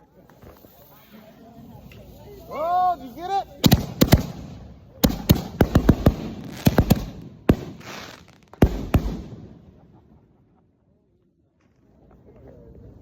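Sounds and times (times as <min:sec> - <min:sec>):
fireworks bangs echoing: 0:03.5 - 0:10.2.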